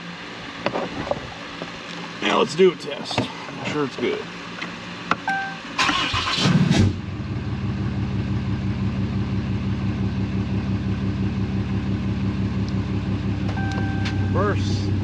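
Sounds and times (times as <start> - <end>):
pickup engine idling: 7.0 - 15.0.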